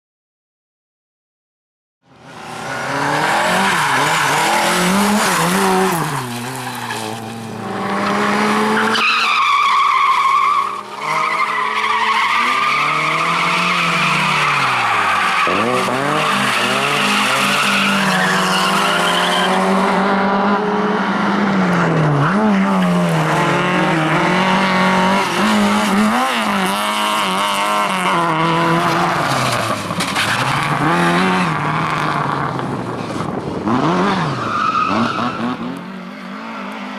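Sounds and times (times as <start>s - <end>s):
rally car engine revving: 2.2s - 36.9s.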